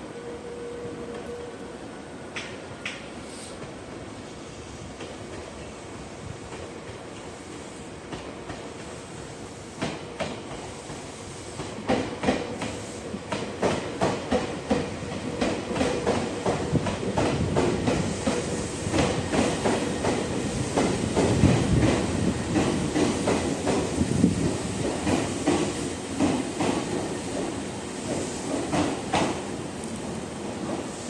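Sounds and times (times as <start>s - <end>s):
train wheels clicking over rail joints: 2.3s - 3.8s, 11.6s - 31.0s.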